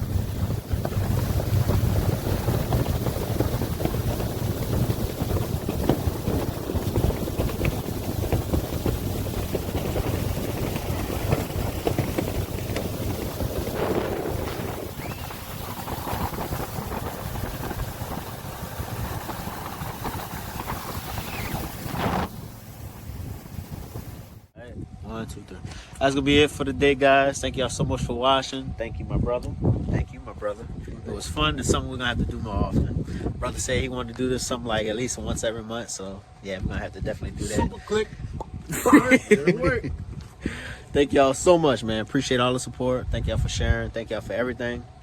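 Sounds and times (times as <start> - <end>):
boat motor running: 0.0 - 24.5
wind buffeting microphone: 0.0 - 35.7, 36.5 - 45.0.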